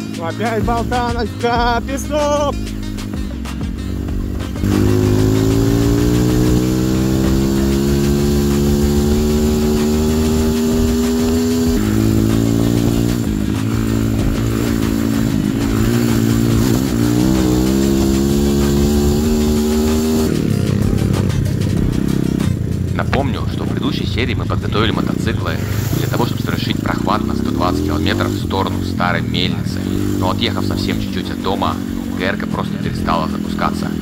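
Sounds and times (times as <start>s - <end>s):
motorcycle engine revving under load: 0.0s - 34.0s.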